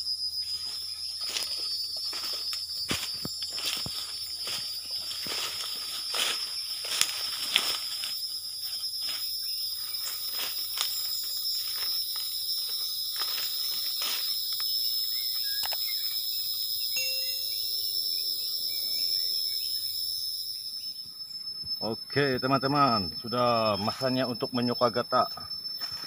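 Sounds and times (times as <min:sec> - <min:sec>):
insects droning: 0:00.0 - 0:26.0
footsteps through leaf litter: 0:01.2 - 0:09.3.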